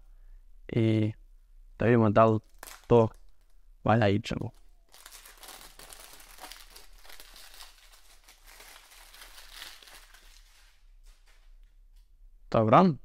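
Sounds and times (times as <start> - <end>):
packaging crinkling and rustling: 2.4 - 3.6, 4.5 - 11.5.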